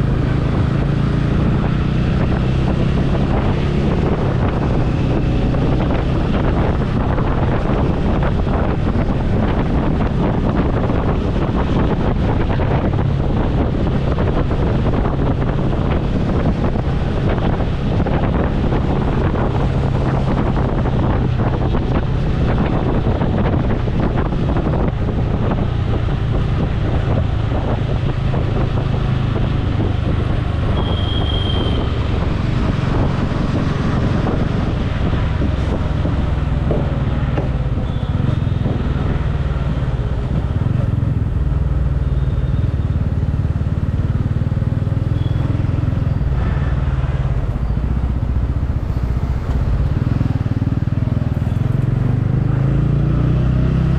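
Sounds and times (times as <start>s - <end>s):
motorcycle engine running: 0.0s - 53.0s
wind noise on microphone: 0.0s - 53.9s.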